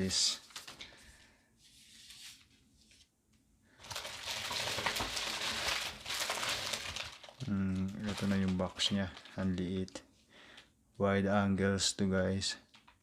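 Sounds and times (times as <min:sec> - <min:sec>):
paper and packaging crinkling: 0:00.0 - 0:01.1, 0:03.8 - 0:10.0.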